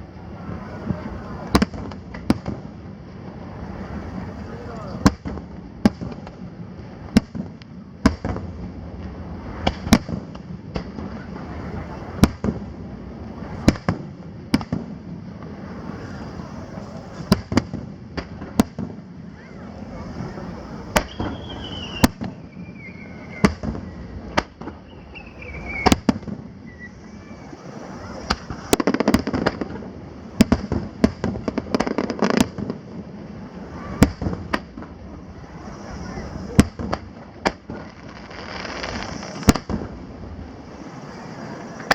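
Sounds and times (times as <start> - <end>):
background noise: 0.0 - 41.9
firework shells bursting: 14.6 - 32.8, 33.4 - 41.9.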